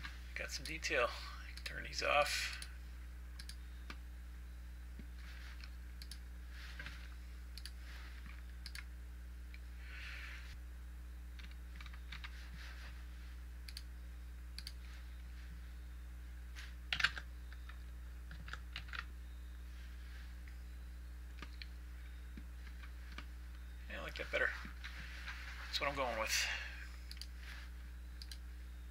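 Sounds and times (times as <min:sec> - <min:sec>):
low hum: 0:00.0 - 0:28.9
computer mouse clicks: 0:03.4 - 0:04.0, 0:05.6 - 0:06.2, 0:07.5 - 0:07.8, 0:08.6 - 0:08.9, 0:13.6 - 0:13.9, 0:14.6 - 0:14.8, 0:27.1 - 0:27.3, 0:28.2 - 0:28.4.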